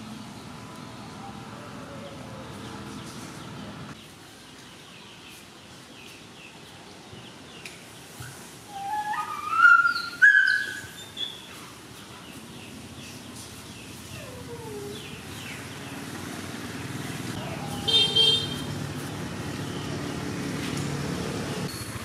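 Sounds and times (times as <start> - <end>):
bird chirping: 0.3 - 16.1
whistled bird call rising: 8.7 - 11.5.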